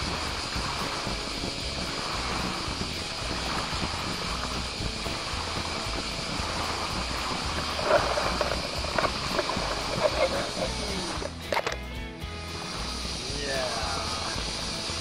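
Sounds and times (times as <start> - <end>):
water splashes: 0.0 - 11.6
flowing water: 0.0 - 11.8, 12.4 - 15.0.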